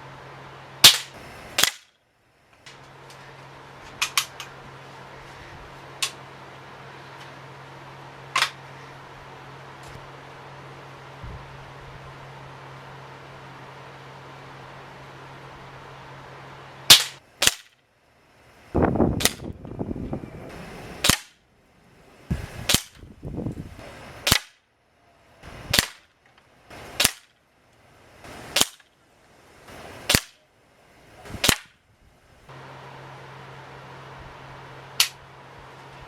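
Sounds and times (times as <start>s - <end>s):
air rifle firing: 0.8s - 2.0s, 16.9s - 17.8s, 19.1s - 19.6s, 21.0s - 21.4s, 22.3s - 23.0s, 24.2s - 24.6s, 25.7s - 26.1s, 26.7s - 27.3s, 28.2s - 28.9s, 30.0s - 30.4s, 31.3s - 31.8s.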